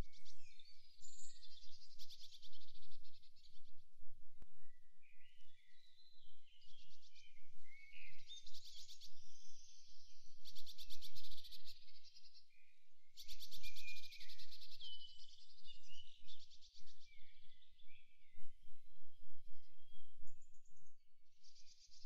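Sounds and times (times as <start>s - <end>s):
songbirds singing with trills: 0.0s - 22.0s.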